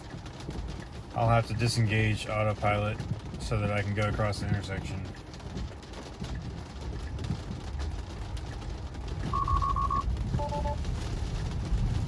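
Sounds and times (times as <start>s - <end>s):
road rumble: 0.0s - 12.0s
high beeps: 9.3s - 10.8s.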